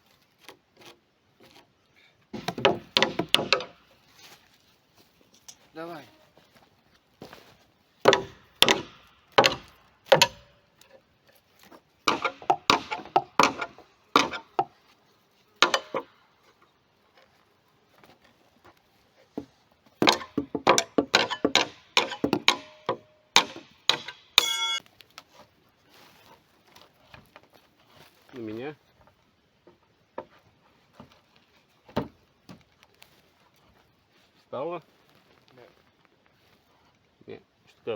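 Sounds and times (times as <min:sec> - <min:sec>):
tool striking wood: 0:02.4 - 0:03.8, 0:08.0 - 0:10.6, 0:12.0 - 0:14.7, 0:15.6 - 0:16.1, 0:20.0 - 0:24.8
short squeak: 0:24.4 - 0:24.8.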